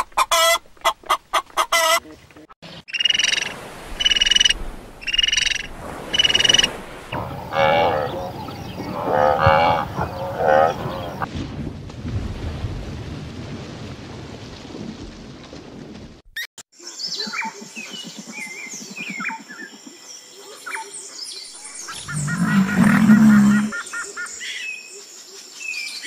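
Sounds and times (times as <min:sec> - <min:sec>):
birds chirping: 0:02.0 - 0:11.3, 0:17.0 - 0:24.8
low rumbling noise: 0:05.6 - 0:11.3
loud low animal call: 0:06.2 - 0:11.3, 0:21.8 - 0:23.9.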